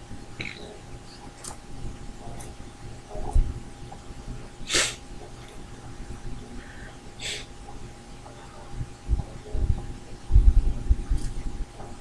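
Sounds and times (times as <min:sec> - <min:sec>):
faint steady hum: 0:00.0 - 0:12.0
man breathing and sniffing: 0:04.7 - 0:05.0, 0:06.6 - 0:07.5.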